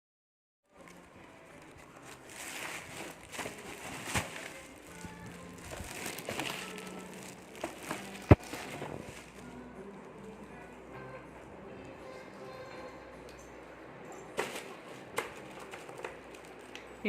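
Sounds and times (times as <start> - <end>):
soft music: 0.7 - 17.0
packaging rustling and crinkling: 0.8 - 9.7.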